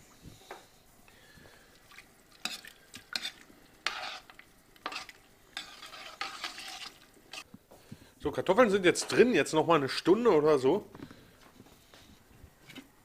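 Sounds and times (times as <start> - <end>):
soup being stirred: 1.2 - 7.5
splashes in a pot: 1.5 - 7.4.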